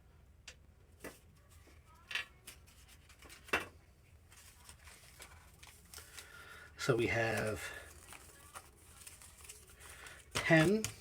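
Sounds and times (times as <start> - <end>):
packaging rustling: 4.3 - 11.0.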